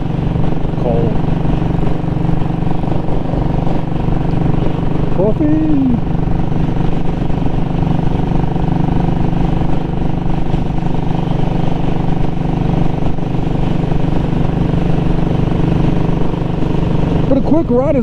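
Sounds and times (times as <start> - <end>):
motorcycle engine and exhaust: 0.0 - 18.0.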